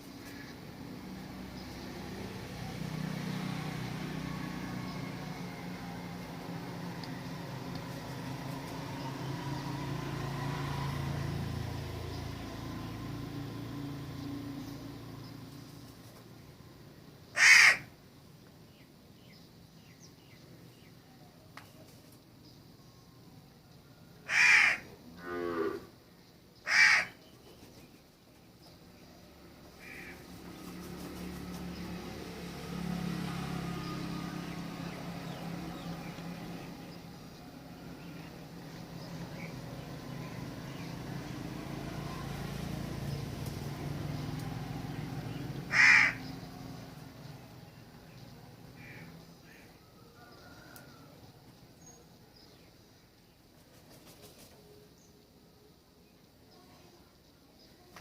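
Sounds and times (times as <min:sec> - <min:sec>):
vehicle engine humming: 0:00.0 - 0:17.3, 0:28.6 - 0:49.6.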